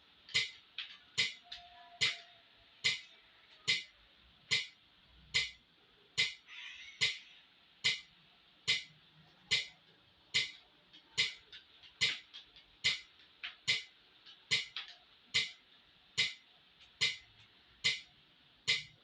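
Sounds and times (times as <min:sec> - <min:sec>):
metronome ticking: 0:00.3 - 0:00.6, 0:01.2 - 0:03.1, 0:03.7 - 0:03.9, 0:04.5 - 0:04.8, 0:05.4 - 0:05.6, 0:07.8 - 0:08.1, 0:08.7 - 0:08.9, 0:09.5 - 0:09.7, 0:10.4 - 0:15.6, 0:16.2 - 0:16.4, 0:17.0 - 0:17.2, 0:17.8 - 0:18.1, 0:18.7 - 0:19.0.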